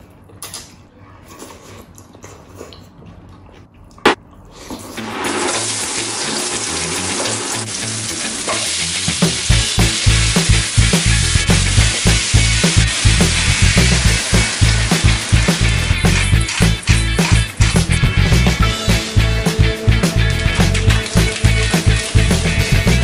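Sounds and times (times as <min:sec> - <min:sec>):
vegetables sizzling in a wok: 0:05.0 - 0:19.2, 0:20.1 - 0:23.0
background music drum beat: 0:08.8 - 0:23.0.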